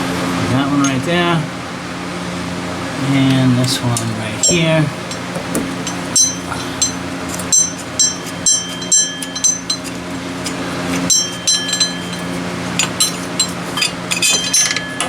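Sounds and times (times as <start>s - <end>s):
steady background hum: 0.0s - 15.0s
wrench clinking on metal bolts: 4.4s - 15.0s.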